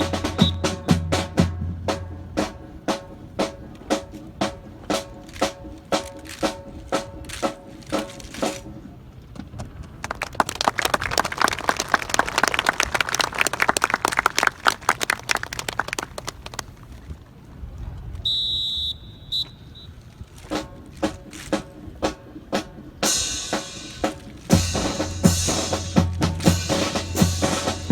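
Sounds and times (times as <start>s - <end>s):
snare and bass drum strikes: 0.0s - 8.8s, 20.5s - 27.9s
crowd applauding: 9.8s - 16.9s.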